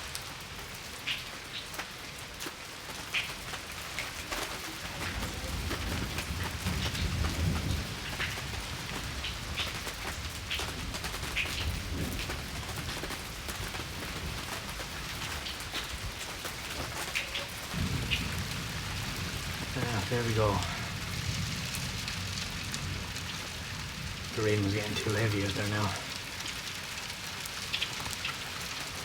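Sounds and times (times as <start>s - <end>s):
heavy rain falling: 0.0s - 29.0s
raindrops ticking on hard surfaces: 0.0s - 29.0s
low rumble of thunder: 4.1s - 27.4s.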